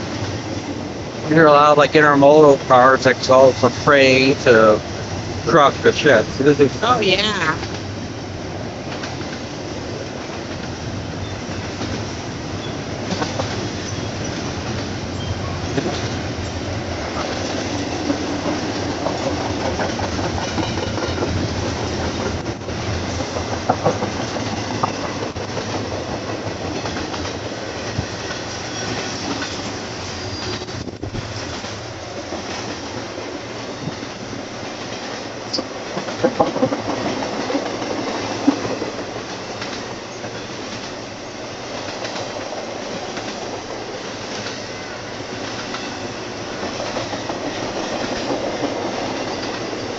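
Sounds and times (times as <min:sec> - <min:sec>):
train wheels clacking: 0:00.0 - 0:08.0, 0:08.8 - 0:49.9
train clanks: 0:00.0 - 0:49.9
wheel squeals: 0:13.8 - 0:14.4, 0:28.6 - 0:30.7.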